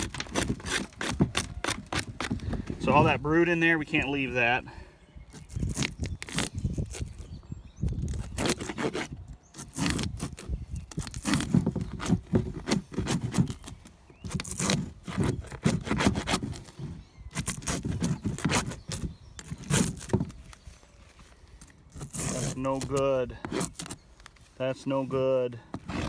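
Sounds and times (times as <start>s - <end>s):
scraping on wooden frame: 0.0s - 3.7s, 8.1s - 20.7s, 21.9s - 24.0s.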